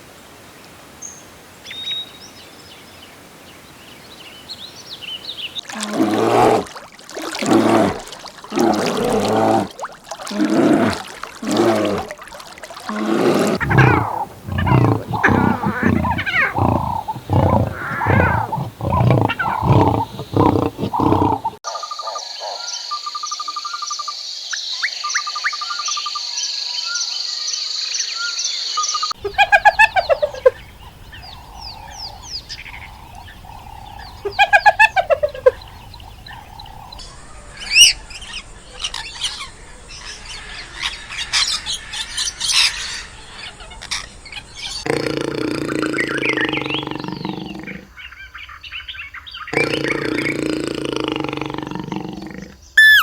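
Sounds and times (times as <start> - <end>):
loud repeated animal calls: 12.8 - 21.6, 52.8 - 53.0
bird chirps and whistles: 52.8 - 53.0.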